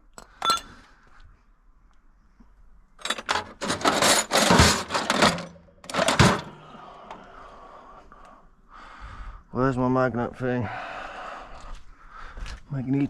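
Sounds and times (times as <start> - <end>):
tools rummaged and clattering: 0.0 - 0.9, 3.0 - 7.2.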